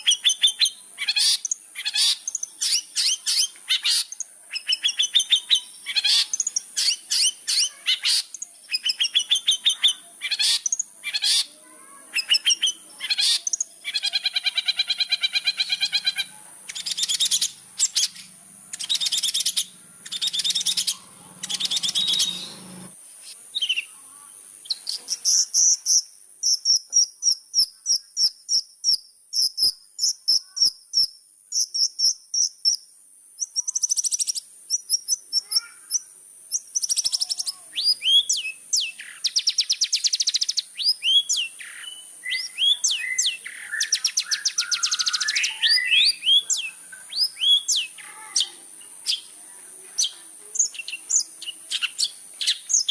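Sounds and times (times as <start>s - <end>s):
bird singing: 0.0s - 52.9s
steady high-pitched hiss: 0.0s - 52.9s
harsh buzzing chatter: 15.7s - 23.0s.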